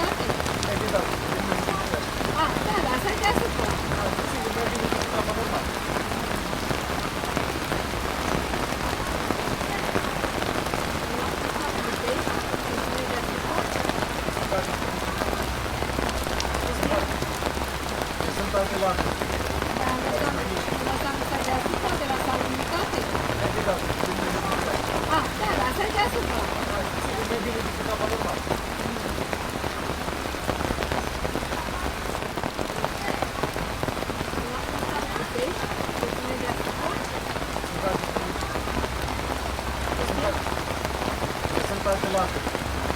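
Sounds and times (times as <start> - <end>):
pouring rain: 0.0 - 42.9.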